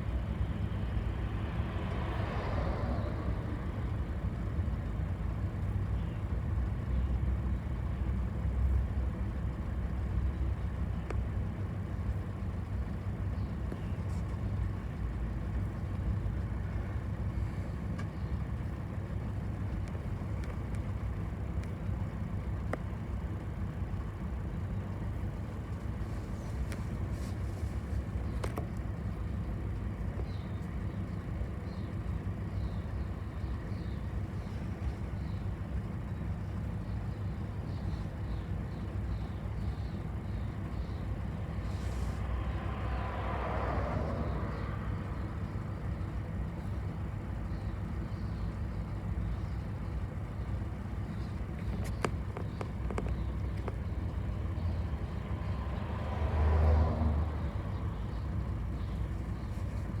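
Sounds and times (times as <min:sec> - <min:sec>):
bus engine and tyre rumble: 0:00.0 - 1:00.0
faint clicks: 0:50.8 - 0:54.2.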